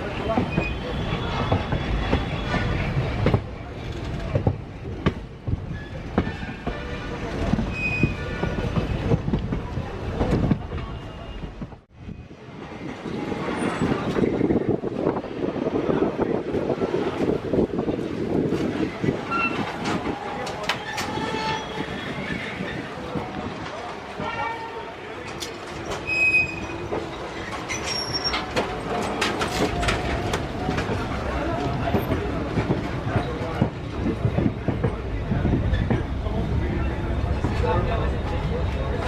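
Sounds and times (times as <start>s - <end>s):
train wheels rumbling on rails: 0.0s - 39.0s
train wheels squealing: 0.1s - 3.1s, 5.4s - 6.7s, 7.7s - 9.1s, 20.6s - 22.9s, 25.8s - 28.6s.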